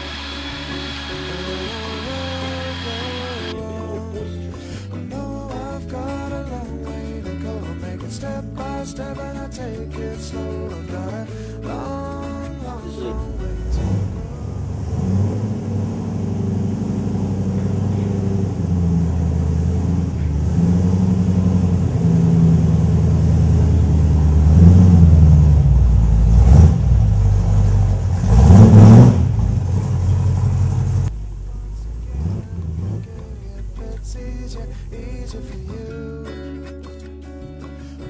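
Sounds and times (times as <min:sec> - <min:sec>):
engine rumbling and revving: 0:00.0 - 0:03.5, 0:13.1 - 0:35.8.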